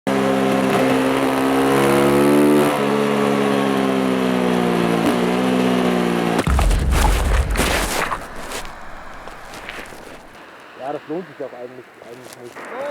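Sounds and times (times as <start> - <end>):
loud low rumble: 6.5 - 10.3.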